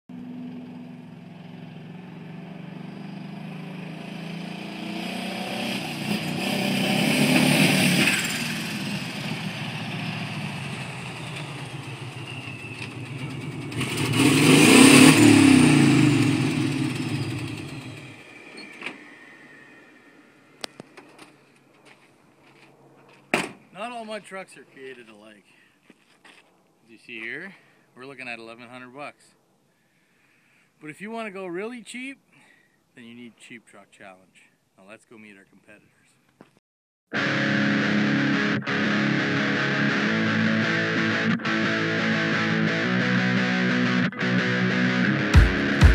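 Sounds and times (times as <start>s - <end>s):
vehicle engine passing by: 0.2s - 23.2s.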